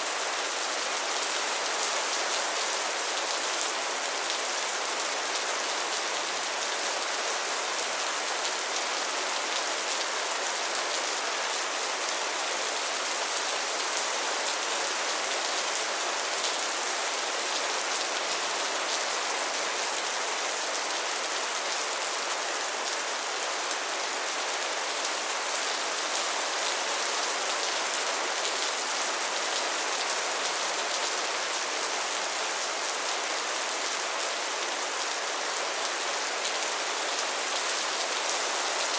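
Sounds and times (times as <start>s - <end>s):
rain pattering on a surface: 0.1s - 22.9s.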